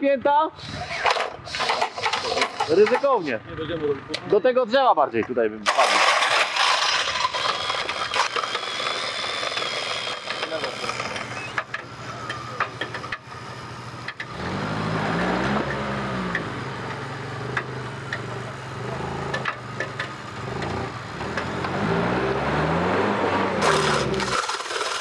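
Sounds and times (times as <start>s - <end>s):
off-road vehicle engine revving: 5.6s - 25.0s.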